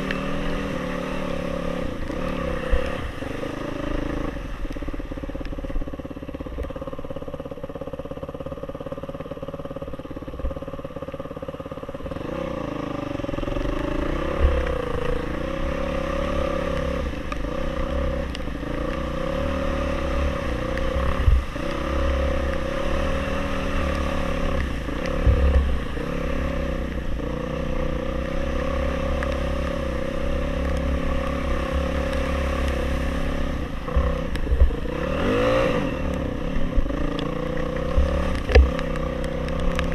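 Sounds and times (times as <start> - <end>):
motorcycle engine running: 0.0 - 39.9
low rumble: 13.2 - 39.9.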